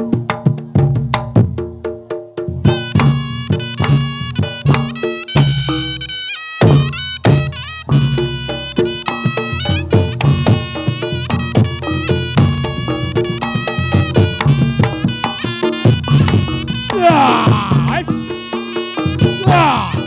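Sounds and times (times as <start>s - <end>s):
drums: 0.0s - 20.0s
shrill reed-pipe melody: 2.7s - 20.0s
gong-chime percussion: 7.4s - 20.0s.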